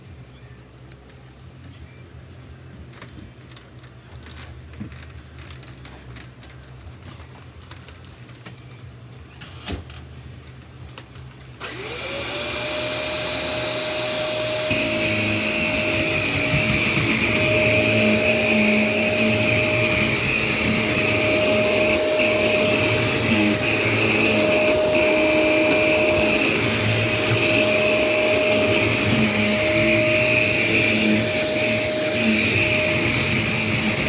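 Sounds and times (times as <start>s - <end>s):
vacuum cleaner motor whining: 11.6s - 34.0s.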